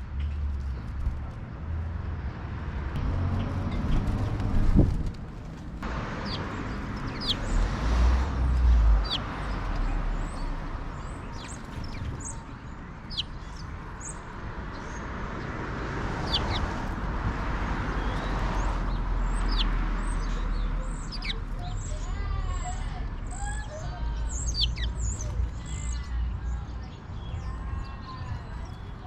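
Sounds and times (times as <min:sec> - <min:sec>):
sparrows chirping: 0:05.8 - 0:29.0.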